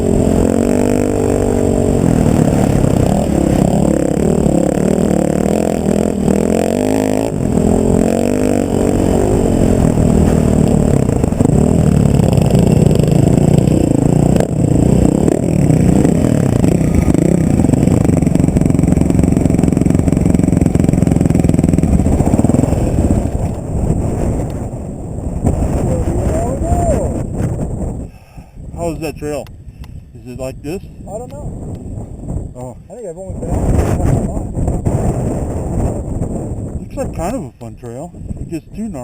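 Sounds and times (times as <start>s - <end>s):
off-road vehicle engine revving: 0.0s - 24.7s.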